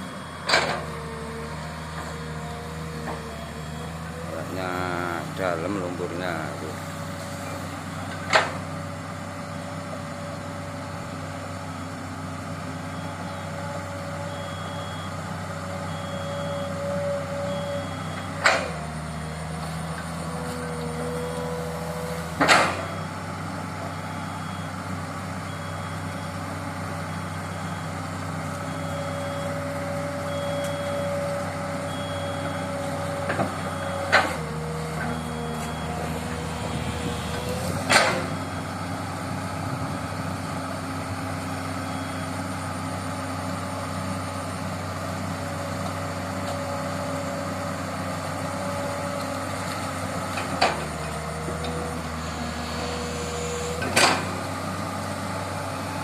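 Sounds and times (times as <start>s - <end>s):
excavator diesel engine running: 0.0s - 56.0s
travel alarm beeping: 28.6s - 32.7s.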